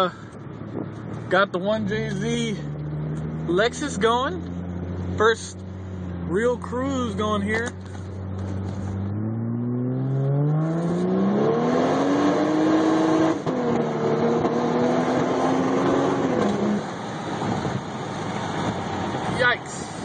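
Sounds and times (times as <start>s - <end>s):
road and wind noise: 0.0s - 20.0s
car engine accelerating hard: 1.7s - 19.4s.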